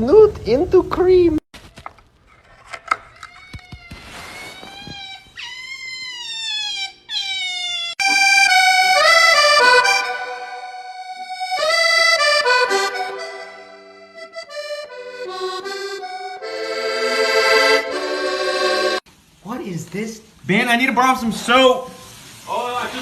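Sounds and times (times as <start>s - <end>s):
accordion tune: 8.0s - 19.1s.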